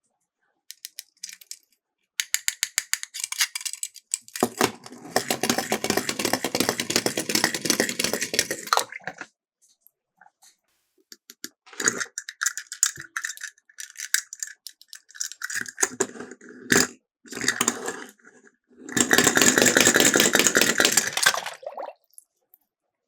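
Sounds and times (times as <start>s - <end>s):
toy cars rattling down slope: 2.3s - 8.8s, 18.9s - 21.4s.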